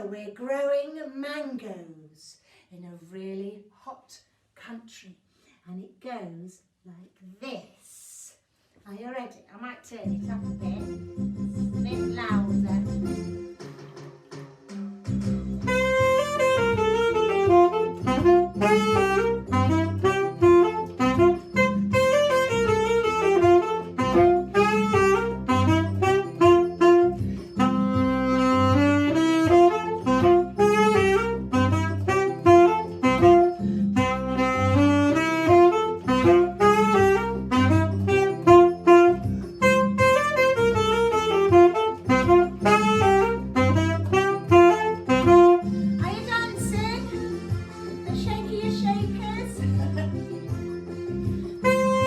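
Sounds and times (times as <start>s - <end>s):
backing track with bass and beat: 10.2s - 52.0s
saxophone playing jazzy tune: 15.6s - 48.5s, 51.2s - 52.0s.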